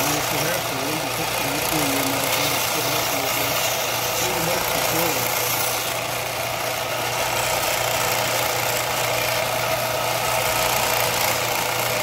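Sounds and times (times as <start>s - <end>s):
abrasive belt hiss: 0.0s - 6.0s
belt grinder running: 0.0s - 12.0s.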